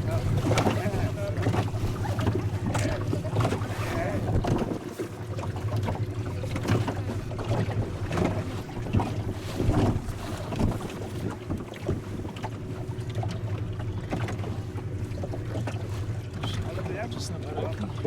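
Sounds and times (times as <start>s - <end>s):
wind buffeting microphone: 0.0s - 5.0s
boat motor running: 0.0s - 18.0s
thumps and splashes: 0.0s - 18.0s.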